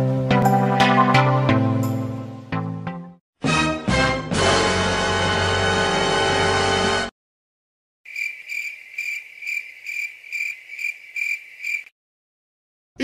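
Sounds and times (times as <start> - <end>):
cricket chirping: 8.1 - 11.9.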